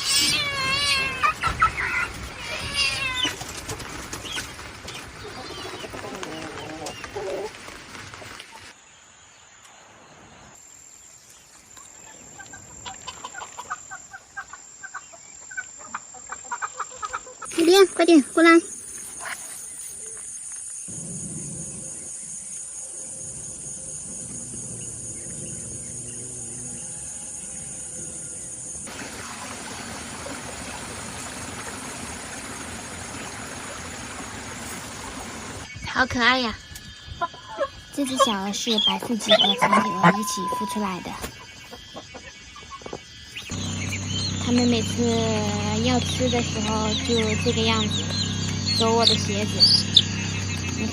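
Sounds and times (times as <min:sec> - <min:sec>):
crickets chirping: 0:08.7 - 0:28.9, 0:30.0 - 0:50.9
running water hiss: 0:17.4 - 0:37.1
chicks peeping: 0:37.2 - 0:40.6, 0:41.6 - 0:50.9.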